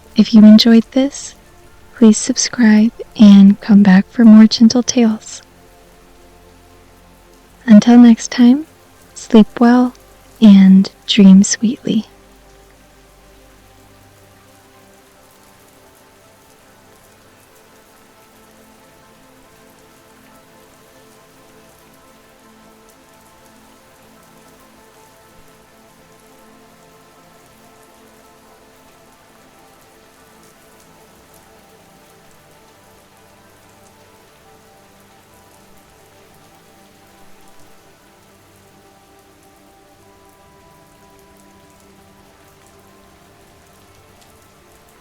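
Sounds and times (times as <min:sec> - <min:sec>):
sustained music tones: 0:00.0 - 0:05.4, 0:07.6 - 0:12.1
rain pattering: 0:00.0 - 0:45.0.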